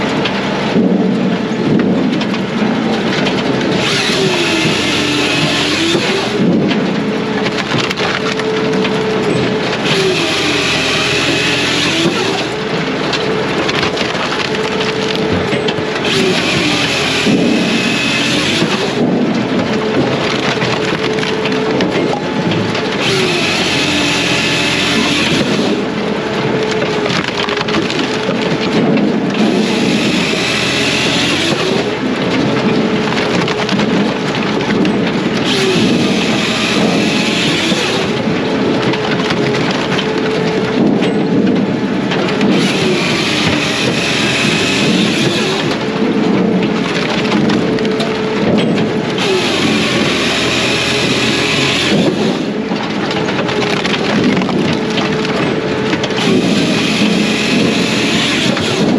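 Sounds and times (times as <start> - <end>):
diesel engine running: 0.0 - 58.9
wood cutting and splitting: 0.0 - 58.9.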